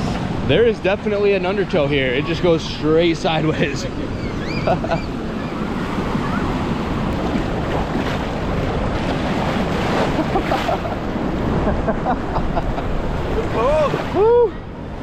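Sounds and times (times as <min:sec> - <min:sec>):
waves breaking: 0:00.0 - 0:15.0
wind on microphone: 0:03.8 - 0:15.0.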